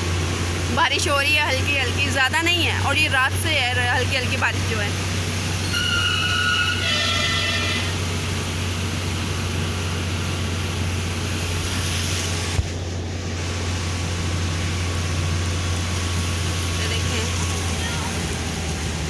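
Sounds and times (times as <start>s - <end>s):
car driving on wet road: 0.0s - 19.0s.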